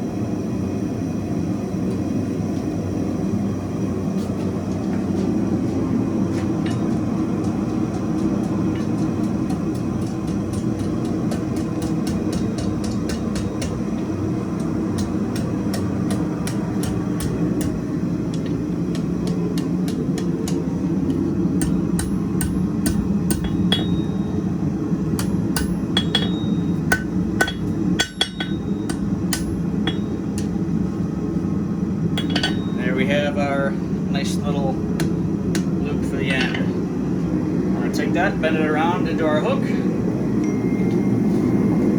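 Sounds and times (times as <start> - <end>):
gas forge burner rushing: 0.0 - 41.9
hammer striking steel on anvil: 6.5 - 14.0, 14.6 - 24.5, 25.1 - 30.6, 32.2 - 32.8, 35.0 - 36.8.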